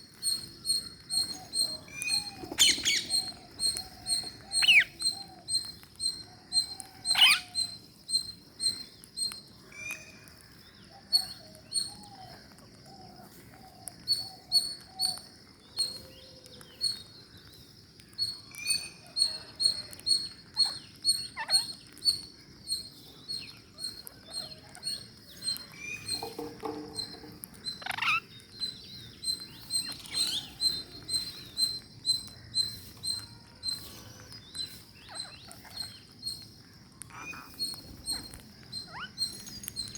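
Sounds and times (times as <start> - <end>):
parakeets chirping: 0.1 - 10.2, 18.2 - 39.9.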